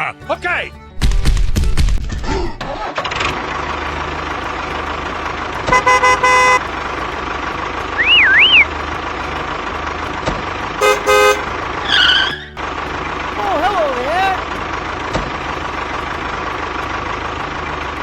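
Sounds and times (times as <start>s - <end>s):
traffic hum: 2.6s - 18.0s
vehicle horn honking: 5.7s - 7.0s, 10.8s - 12.4s
short warbling whistle: 8.0s - 8.7s.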